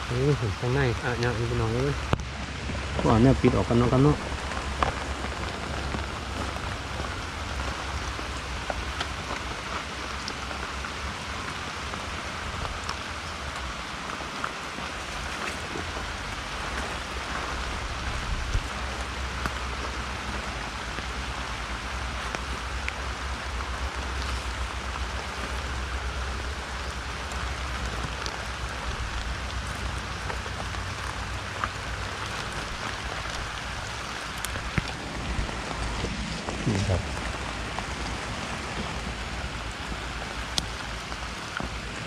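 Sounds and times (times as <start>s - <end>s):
steady rain falling: 0.0s - 42.0s
low rumble: 14.8s - 42.0s.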